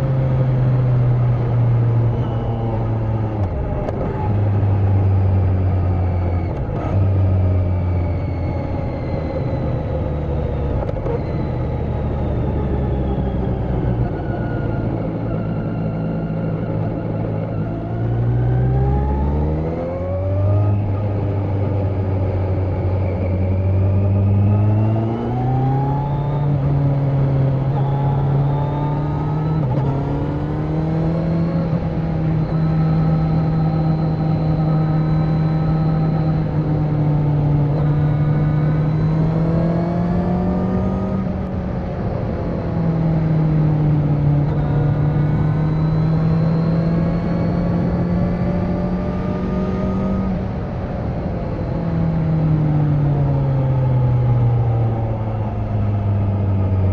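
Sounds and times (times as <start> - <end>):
motorcycle engine revving: 14.2 - 41.5, 42.4 - 50.8.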